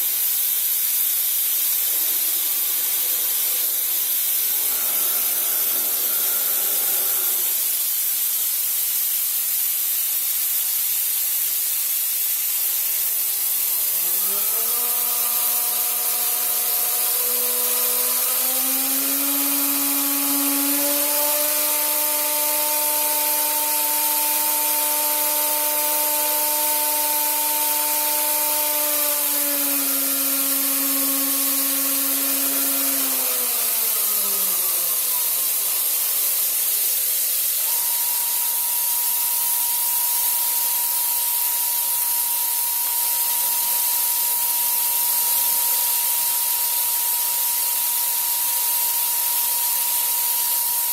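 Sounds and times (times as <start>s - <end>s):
loud steady hiss: 0.0s - 50.9s
spindle motor whining: 1.2s - 8.4s, 12.7s - 50.9s
steady high tone: 1.8s - 7.8s.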